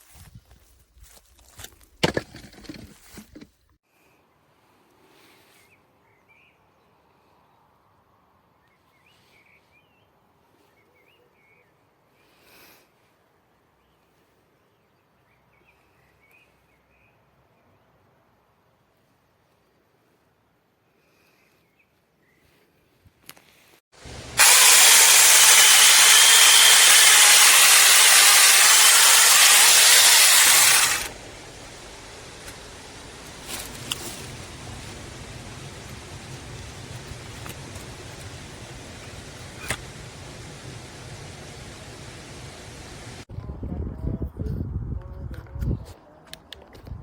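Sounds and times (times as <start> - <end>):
mini chainsaw running: 24.0 - 43.2
background hiss: 30.9 - 43.3.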